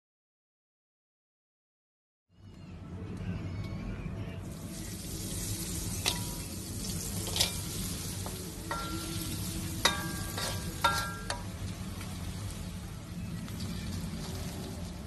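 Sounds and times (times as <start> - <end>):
clams sizzling in a pan: 4.6 - 15.0
metal utensil clinking on pan: 6.0 - 6.5, 7.2 - 11.6.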